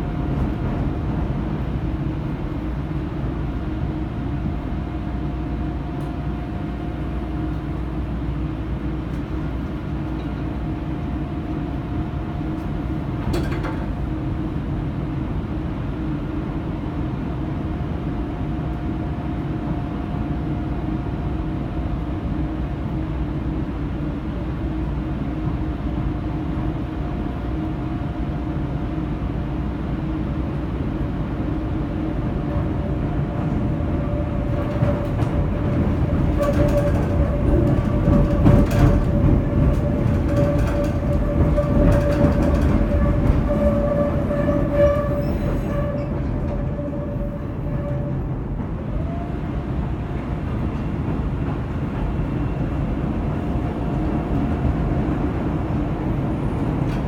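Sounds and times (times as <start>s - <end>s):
wheels rumbling on rail: 0.0s - 57.0s
wheel squeal: 40.3s - 48.2s.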